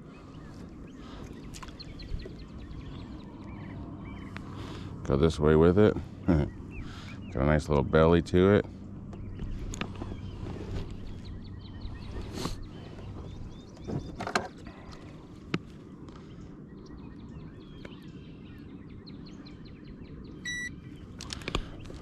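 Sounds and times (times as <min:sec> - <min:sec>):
birds chirping and singing: 0:00.0 - 0:22.0
low outdoor rumble: 0:00.0 - 0:22.0
short electronic beep: 0:20.4 - 0:20.7.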